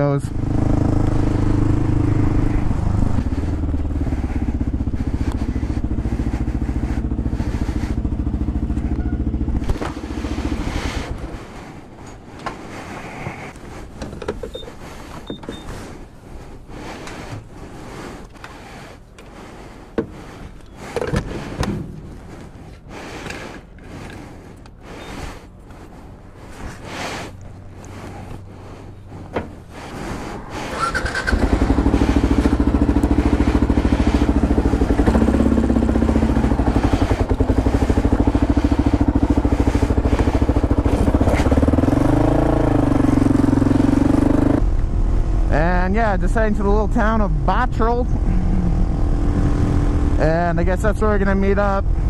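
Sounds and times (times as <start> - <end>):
motorcycle engine running: 0.0 - 12.0, 30.5 - 52.0.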